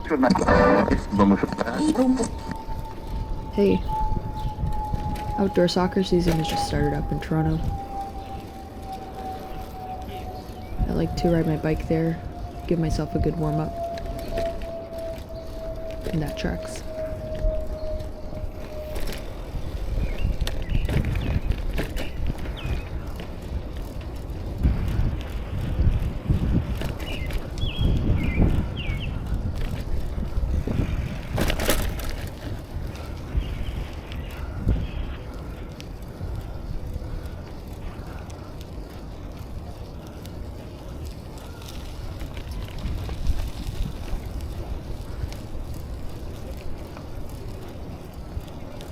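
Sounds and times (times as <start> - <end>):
wind and road rumble: 0.0 - 48.9
bicycle rattles and clicks: 2.2 - 48.9.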